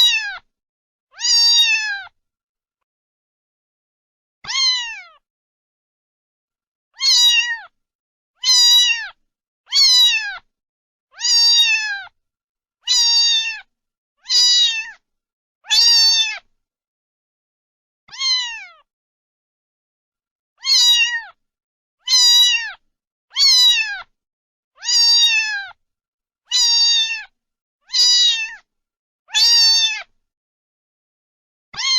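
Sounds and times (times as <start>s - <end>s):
cat meowing: 0.0s - 0.5s, 1.1s - 2.2s, 4.4s - 5.2s, 7.0s - 7.8s, 8.4s - 10.5s, 11.1s - 12.2s, 12.9s - 15.0s, 15.6s - 16.5s, 18.1s - 18.9s, 20.6s - 21.4s, 22.0s - 24.1s, 24.8s - 25.8s, 26.5s - 28.7s, 29.3s - 30.1s.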